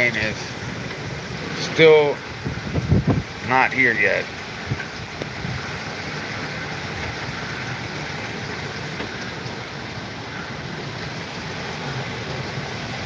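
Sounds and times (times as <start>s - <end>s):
storm wind rushing: 2.2s - 3.6s.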